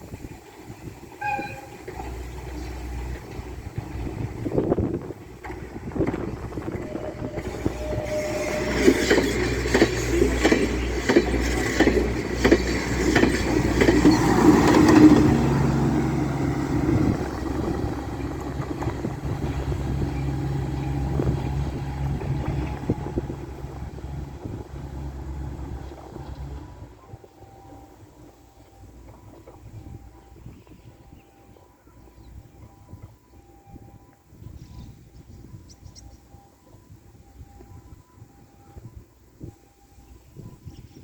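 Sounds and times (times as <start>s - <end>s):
low train engine hum: 0.0s - 41.0s
train wheels clacking over rail joints: 5.2s - 15.5s.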